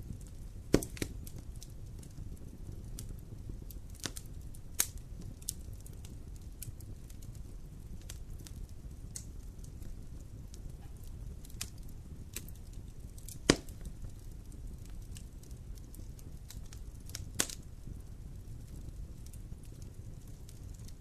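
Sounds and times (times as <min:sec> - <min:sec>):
campfire crackling: 0:00.0 - 0:21.0
loud fire pop: 0:00.6 - 0:01.4, 0:13.2 - 0:13.9.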